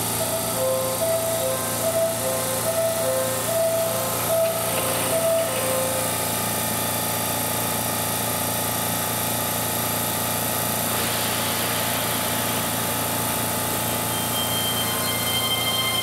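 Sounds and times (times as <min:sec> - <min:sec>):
electric train humming: 0:00.0 - 0:08.0, 0:08.8 - 0:16.0
hiss: 0:10.7 - 0:14.2.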